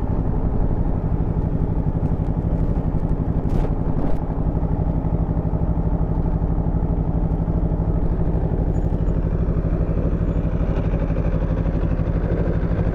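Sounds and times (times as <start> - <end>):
motorcycle engine idling: 0.0 - 12.9.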